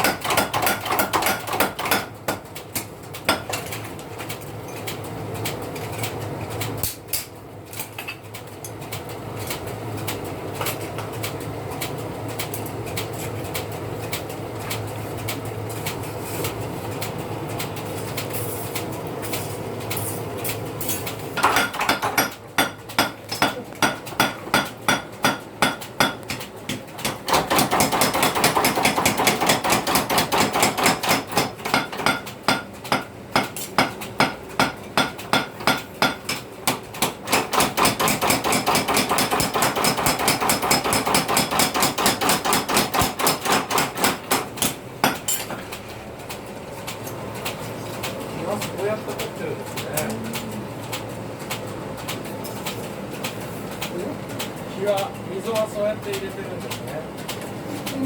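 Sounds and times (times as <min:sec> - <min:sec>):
hammer striking steel: 0:21.4 - 0:45.6.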